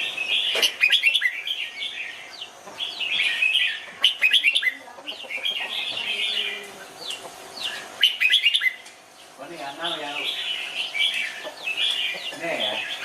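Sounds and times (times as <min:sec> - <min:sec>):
bird singing whistled notes: 0:00.0 - 0:02.2, 0:07.6 - 0:08.8.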